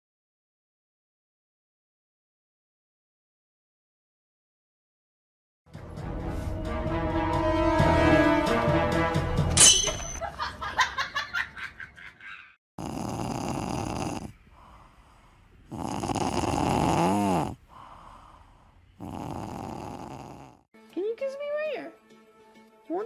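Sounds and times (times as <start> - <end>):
music with low horn tone: 5.7 - 9.6
cat snoring: 12.8 - 20.7.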